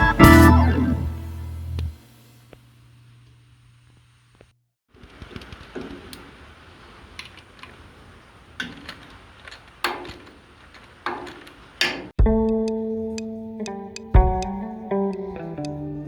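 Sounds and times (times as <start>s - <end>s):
electric guitar music: 0.0s - 2.0s, 12.2s - 16.0s.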